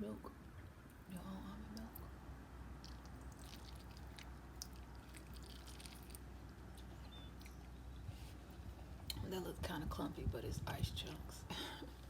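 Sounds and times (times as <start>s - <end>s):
low steady hum: 0.0s - 12.0s
cereal crunching while chewed: 2.8s - 6.3s.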